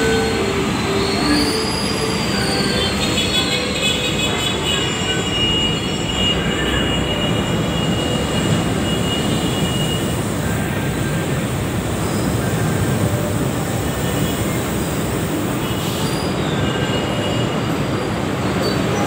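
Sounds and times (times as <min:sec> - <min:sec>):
high squeal: 0:00.0 - 0:19.0
train wheels rumbling on rail: 0:00.0 - 0:19.0.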